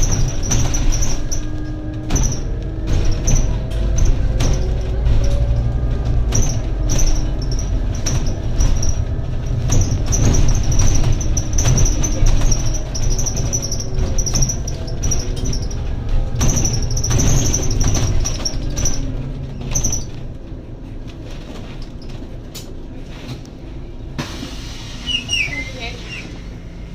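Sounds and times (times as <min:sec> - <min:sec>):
bus engine rumbling: 0:00.0 - 0:26.9
high chirping squeak: 0:25.0 - 0:26.4.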